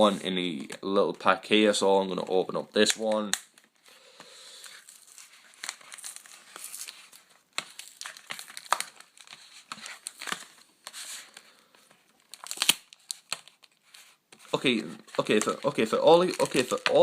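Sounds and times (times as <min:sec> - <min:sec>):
packaging crinkling and tearing: 0:04.6 - 0:11.5, 0:12.1 - 0:17.0.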